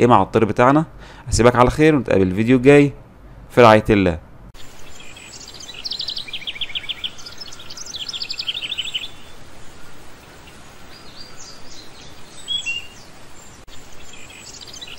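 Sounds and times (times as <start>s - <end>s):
steady faint hiss: 0.5s - 14.9s
small birds chirping: 4.6s - 14.9s.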